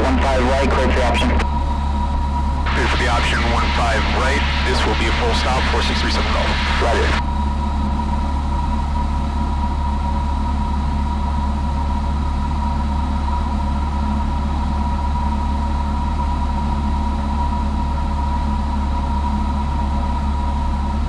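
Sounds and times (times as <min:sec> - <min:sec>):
steady high whine: 0:00.0 - 0:07.4
propeller plane engine droning: 0:00.0 - 0:21.0.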